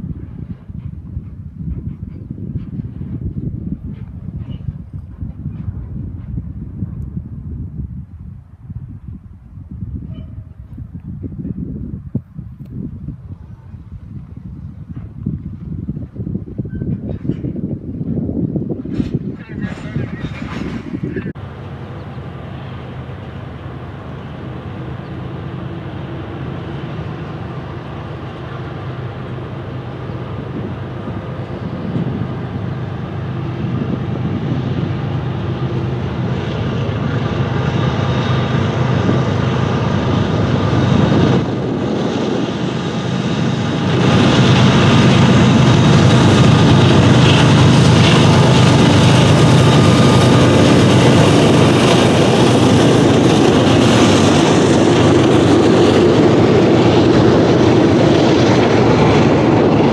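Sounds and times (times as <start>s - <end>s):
diesel locomotive drone: 0.0s - 59.9s
freight train wheels rumbling: 0.0s - 59.9s.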